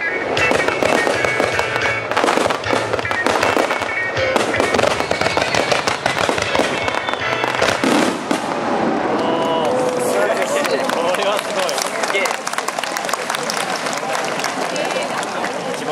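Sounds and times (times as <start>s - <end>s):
music playing: 0.0s - 8.4s
fireworks bursting and crackling: 0.3s - 10.8s.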